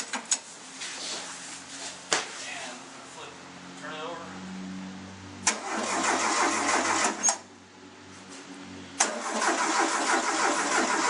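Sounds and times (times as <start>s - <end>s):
starter motor cranking engine: 5.4s - 7.4s, 9.0s - 11.0s.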